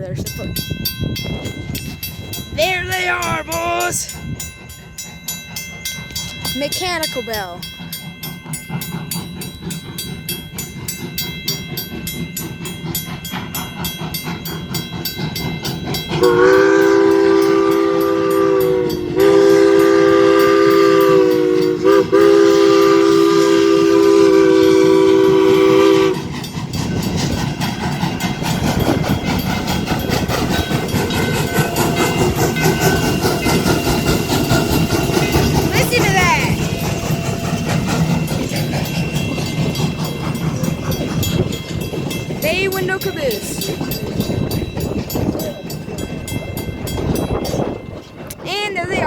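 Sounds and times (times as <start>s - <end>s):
crossing bell ringing: 0.0s - 49.0s
train rumbling and rattling: 0.0s - 49.0s
steam locomotive whistle: 16.1s - 26.4s.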